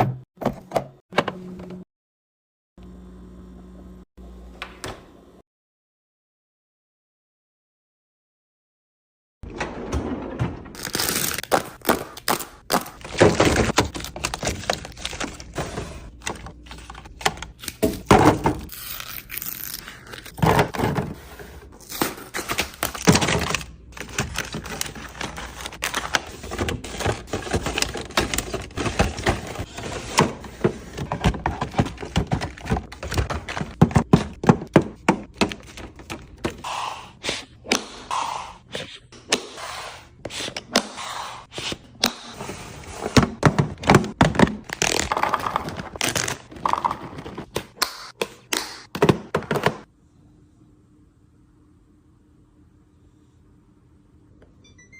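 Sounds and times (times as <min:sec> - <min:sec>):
food containers thunking and knocking: 0:12.7 - 0:18.7, 0:20.4 - 0:21.2, 0:23.0 - 0:36.6, 0:43.2 - 0:49.9.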